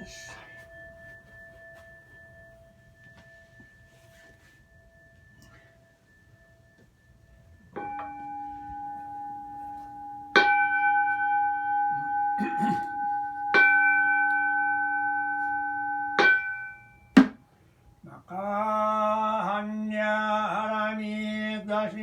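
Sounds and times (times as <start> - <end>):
bowl bell ringing: 0.0 - 17.4
sharp knock: 17.2 - 17.4.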